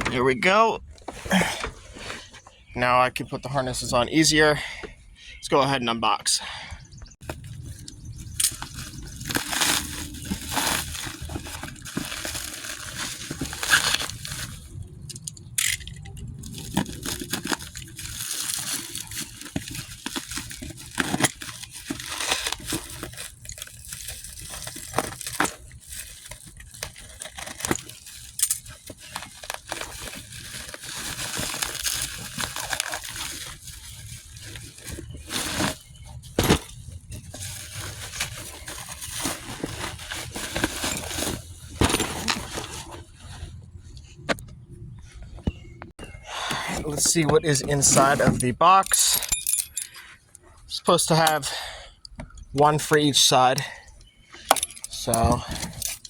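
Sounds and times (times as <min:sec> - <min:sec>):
cardboard packaging tearing: 0:08.5 - 0:14.7, 0:16.4 - 0:43.0.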